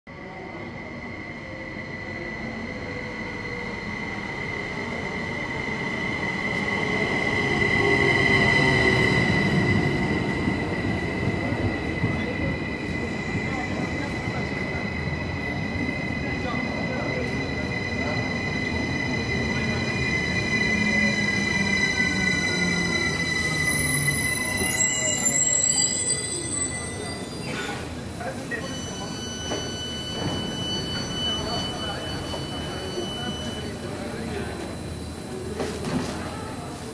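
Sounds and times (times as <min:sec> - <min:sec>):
wheels and brakes squealing: 0:01.4 - 0:35.6
high-pitched wheel squeal: 0:17.2 - 0:27.7, 0:28.5 - 0:33.8.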